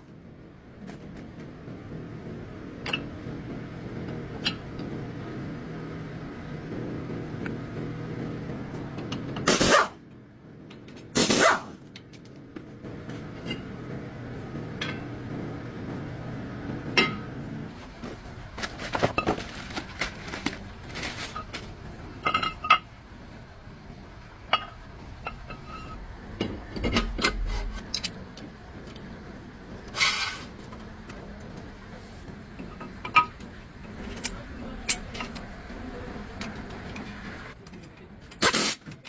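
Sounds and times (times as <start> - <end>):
low hum: 11.8 - 38.4.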